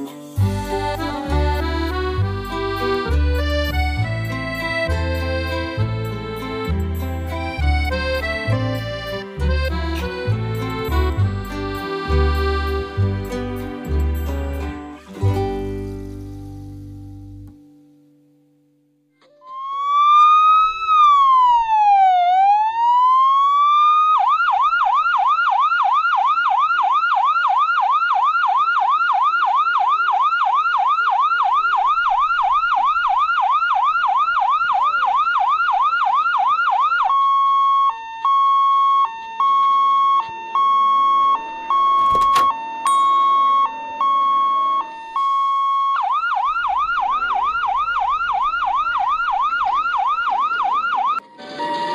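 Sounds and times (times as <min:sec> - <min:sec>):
electronic toy siren: 0:19.2 - 0:51.9.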